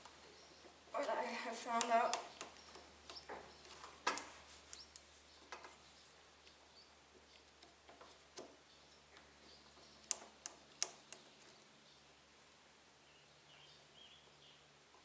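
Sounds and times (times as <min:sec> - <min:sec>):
clicks and taps of small parts: 0:09.8 - 0:11.3.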